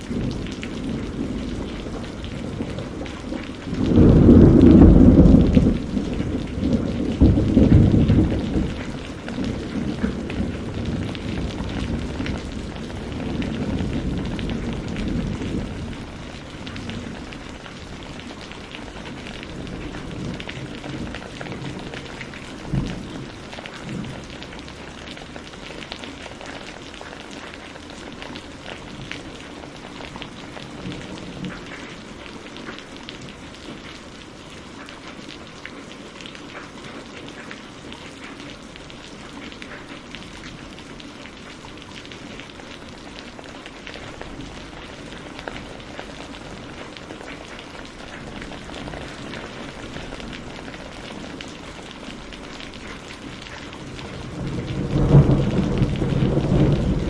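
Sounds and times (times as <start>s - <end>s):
thunder rumble: 0.0s - 25.4s, 52.4s - 57.0s
rain pattering: 0.0s - 57.0s.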